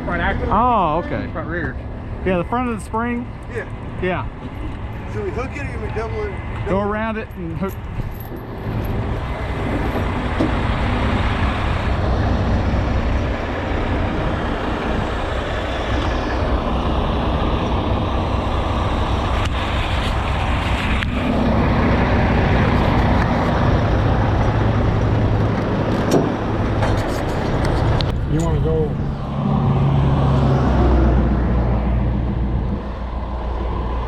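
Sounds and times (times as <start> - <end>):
truck diesel engine running: 0.0 - 34.0.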